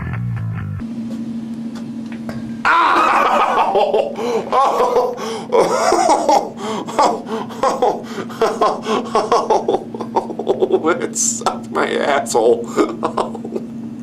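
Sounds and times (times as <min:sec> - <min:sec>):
loud hearty laughter: 0:02.7 - 0:11.0, 0:12.7 - 0:13.7.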